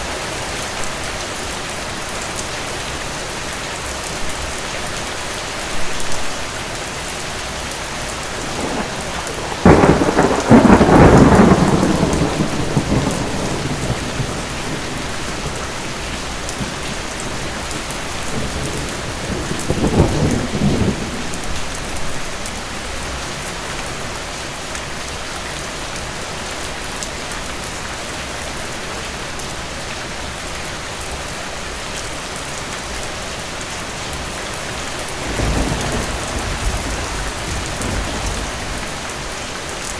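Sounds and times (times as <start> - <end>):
heavy rain: 0.0 - 39.9
thunder rumbling: 8.0 - 22.7, 34.8 - 39.9.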